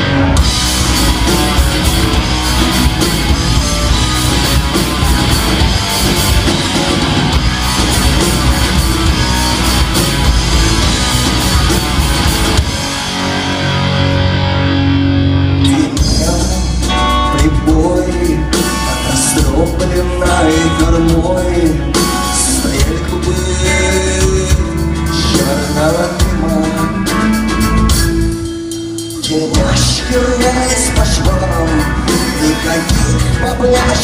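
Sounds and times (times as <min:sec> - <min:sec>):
bass line: 0:00.0 - 0:34.0
electric guitar: 0:00.0 - 0:34.0
drum beat: 0:00.4 - 0:13.0.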